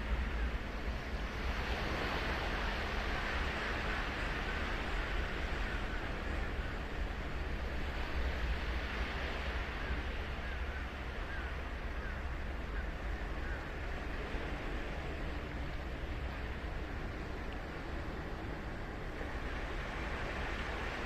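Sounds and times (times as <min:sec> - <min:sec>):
ocean surf breaking on beach: 0:00.0 - 0:11.5, 0:13.7 - 0:21.0.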